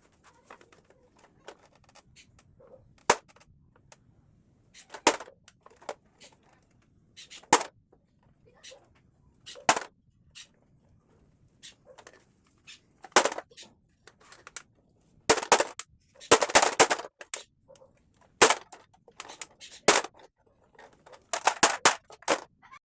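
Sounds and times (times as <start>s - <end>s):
plastic being smashed and cracking: 3.0s - 3.4s, 4.9s - 6.0s, 7.5s - 7.7s, 9.7s - 9.9s, 13.1s - 13.5s, 15.3s - 17.4s, 18.4s - 20.2s, 21.0s - 22.5s.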